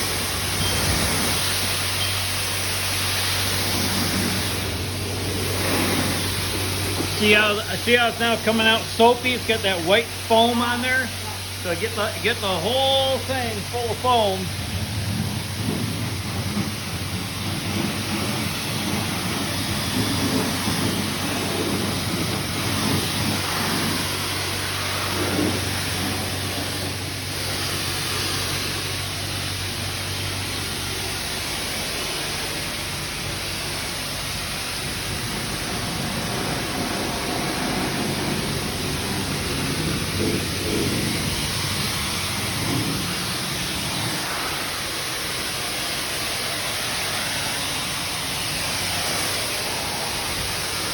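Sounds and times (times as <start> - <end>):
pressure washer water spray hissing: 0.0 - 50.9.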